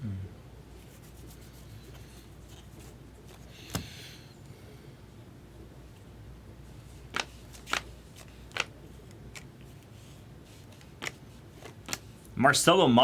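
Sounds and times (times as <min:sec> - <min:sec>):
low steady hum: 0:00.0 - 0:13.0
trading cards snapping and sliding: 0:07.1 - 0:08.7.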